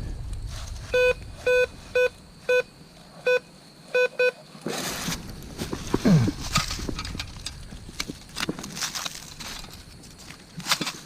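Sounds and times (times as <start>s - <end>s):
metal detector low beeps: 0.9s - 4.4s.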